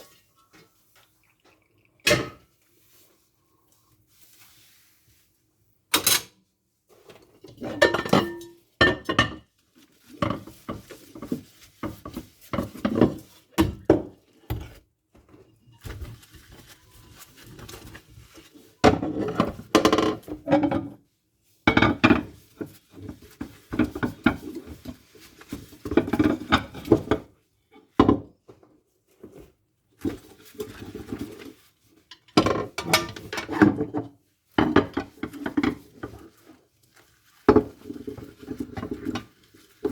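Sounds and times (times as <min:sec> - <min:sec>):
dishes clattering in a sink: 0:01.2 - 0:02.6, 0:07.4 - 0:14.8, 0:18.8 - 0:21.0, 0:21.7 - 0:25.1, 0:25.8 - 0:27.3, 0:32.0 - 0:36.4.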